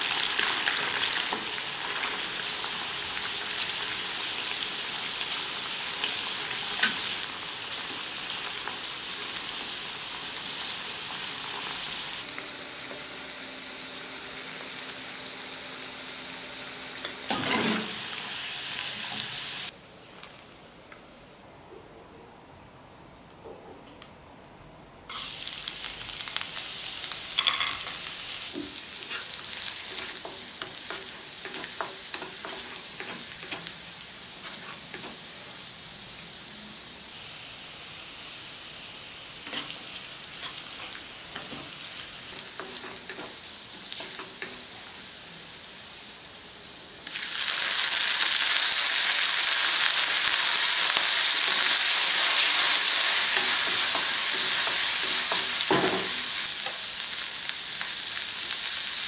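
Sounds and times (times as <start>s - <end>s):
food sizzling in hot oil: 0.0s - 19.8s, 25.1s - 59.0s
wooden spatula scraping a pan: 34.4s - 35.2s.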